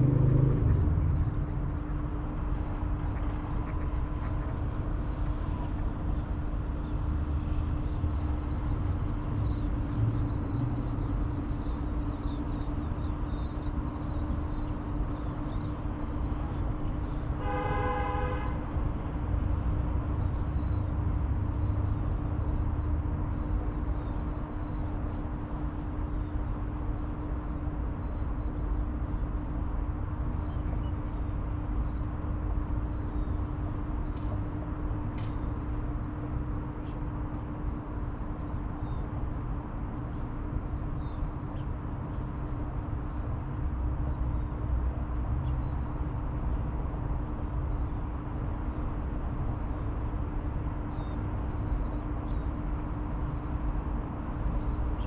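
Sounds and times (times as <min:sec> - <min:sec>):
steady low rumble: 0:00.0 - 0:11.2
constant hum: 0:00.0 - 0:55.0.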